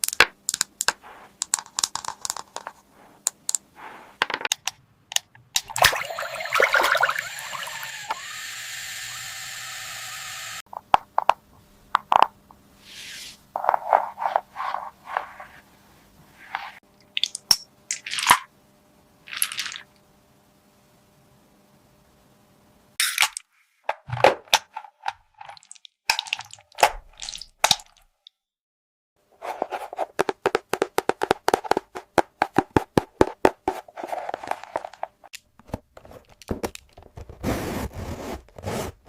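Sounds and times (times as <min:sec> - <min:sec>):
plastic toy pieces clicking: 0:00.0 - 0:02.7.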